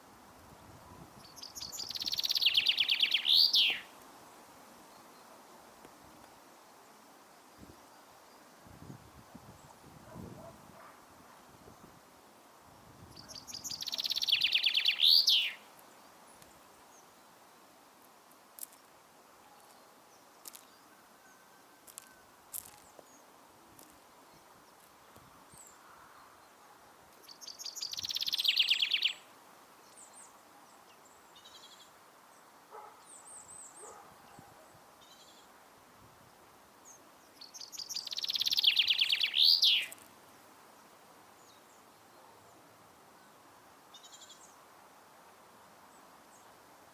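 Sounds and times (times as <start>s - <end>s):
songbird trilling: 1.2s - 3.9s, 13.2s - 15.6s, 27.3s - 29.2s, 37.4s - 40.0s
faint bird chips and clicks: 13.3s - 16.6s, 27.2s - 29.1s, 37.6s - 40.2s.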